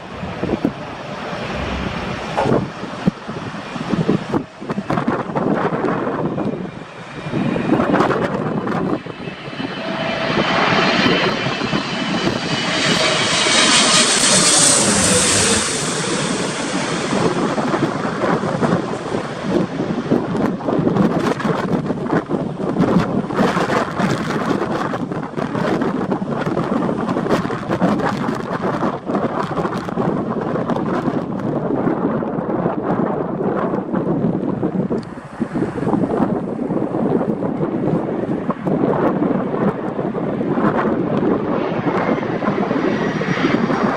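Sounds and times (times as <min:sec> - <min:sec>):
wind gust thumps on microphone: 0:00.0 - 0:06.4
jet engines whining: 0:00.0 - 0:20.9
wind buffeting microphone: 0:00.0 - 0:43.9.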